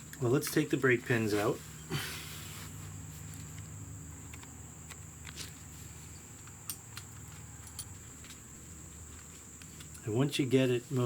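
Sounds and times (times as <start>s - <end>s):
hand tools clicking and knocking: 6.4s - 8.4s.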